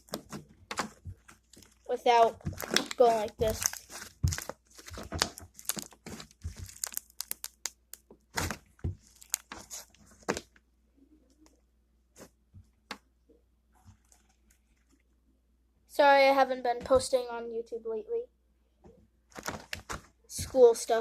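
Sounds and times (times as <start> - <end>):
slime squeezed with crackles and pops: 0.0 - 9.9.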